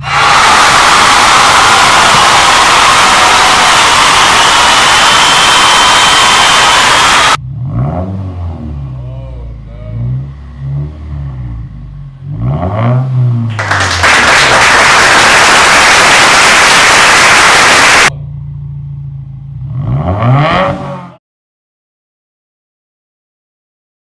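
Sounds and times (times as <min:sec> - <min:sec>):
loud harsh rushing noise: 0:00.0 - 0:07.4, 0:14.0 - 0:18.1
car engine idling and revving: 0:07.3 - 0:13.6, 0:17.8 - 0:21.2.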